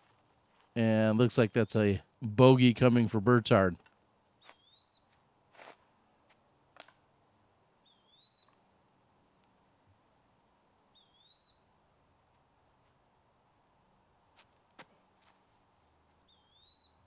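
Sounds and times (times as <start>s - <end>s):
bird whistling: 4.4s - 5.1s, 7.8s - 8.5s, 11.0s - 11.6s, 16.3s - 17.0s.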